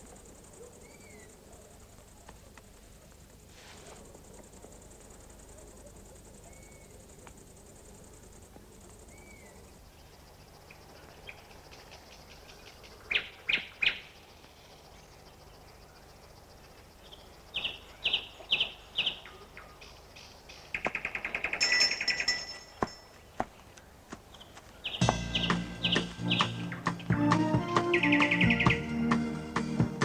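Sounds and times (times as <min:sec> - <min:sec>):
small bird chirping: 0:00.0 - 0:02.4, 0:05.1 - 0:07.4, 0:08.2 - 0:27.2, 0:27.8 - 0:28.8
faint high hiss: 0:00.0 - 0:22.4.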